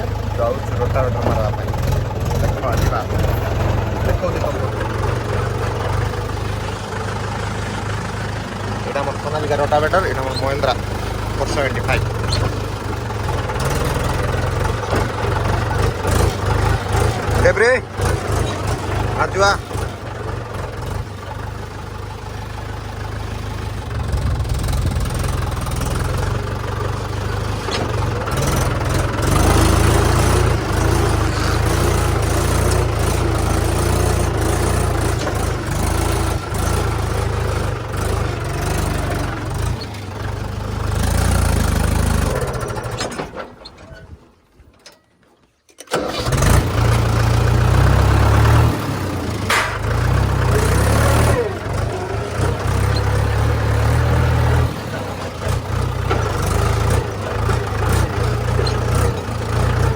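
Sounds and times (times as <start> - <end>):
tractor diesel engine running: 0.0 - 44.7, 45.8 - 59.9.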